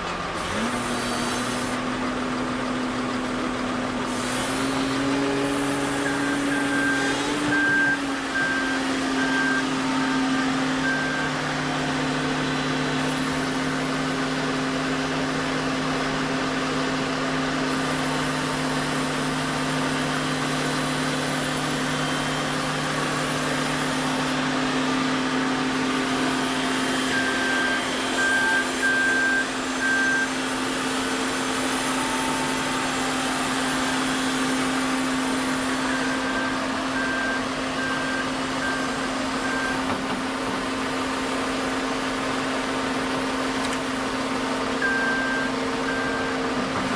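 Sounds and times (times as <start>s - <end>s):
heavy machine engine running: 0.0s - 46.9s
reversing alarm beeping: 4.7s - 14.4s, 18.2s - 40.0s, 44.8s - 46.6s.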